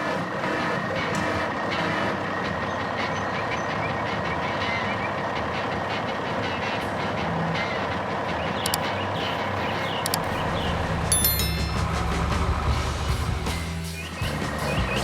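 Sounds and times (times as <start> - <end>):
heavy vehicle engine running: 4.0 - 14.9.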